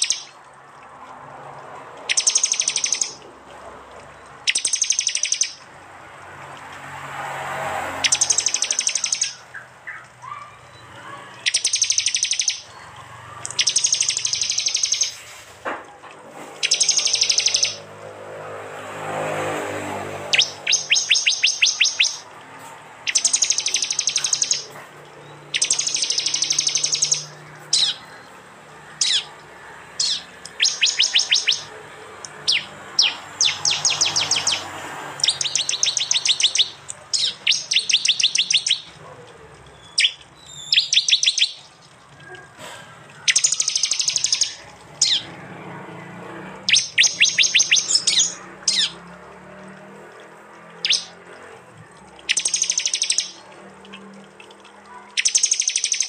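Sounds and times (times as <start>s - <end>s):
bird chattering calls: 0.0s - 0.4s, 2.0s - 3.2s, 4.5s - 5.7s, 8.0s - 12.8s, 13.4s - 15.3s, 16.6s - 17.9s, 20.3s - 22.3s, 23.1s - 24.8s, 25.5s - 28.3s, 29.0s - 29.4s, 30.0s - 31.7s, 32.3s - 39.1s, 39.8s - 45.3s, 46.7s - 49.0s, 50.8s - 51.2s, 52.2s - 54.0s, 54.9s - 56.0s.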